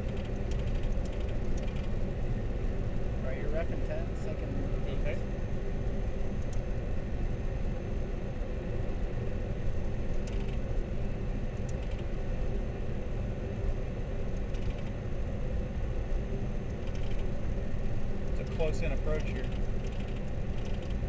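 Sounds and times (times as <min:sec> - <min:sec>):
jet cockpit rumble: 0:00.0 - 0:21.0.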